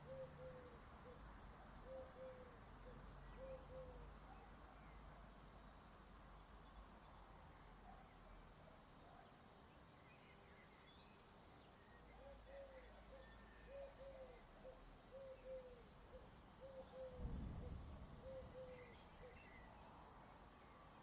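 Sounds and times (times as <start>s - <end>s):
bird cooing: 0.0s - 1.2s, 1.8s - 4.1s, 12.1s - 19.7s
faint bird chirps: 10.0s - 21.0s.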